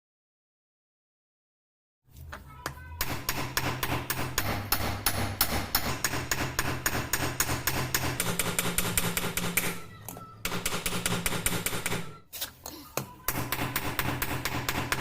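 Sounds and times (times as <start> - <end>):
hammer striking chisel on anvil: 2.6 - 12.2, 13.3 - 15.0.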